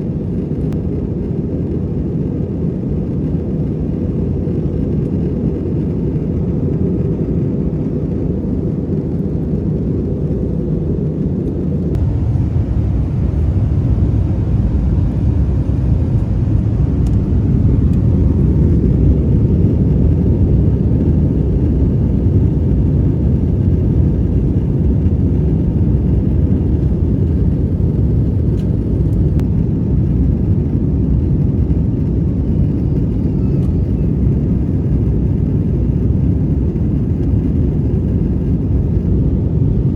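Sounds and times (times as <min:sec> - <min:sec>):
airliner cabin noise: 0:00.0 - 0:39.9.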